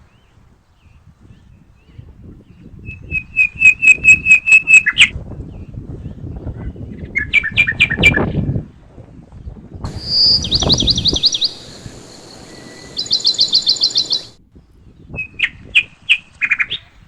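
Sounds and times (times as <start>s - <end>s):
songbird singing: 9.9s - 15.4s.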